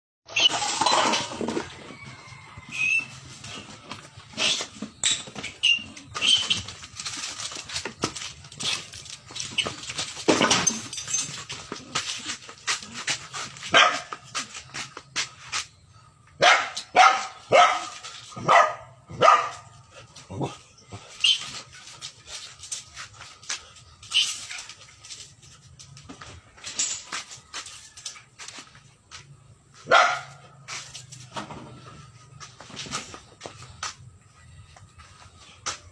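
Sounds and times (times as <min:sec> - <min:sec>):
dog barking and whimpering: 0:13.7 - 0:14.2, 0:16.4 - 0:20.6, 0:29.9 - 0:30.5
scrabbling and clicking scuffles: 0:30.6 - 0:34.1.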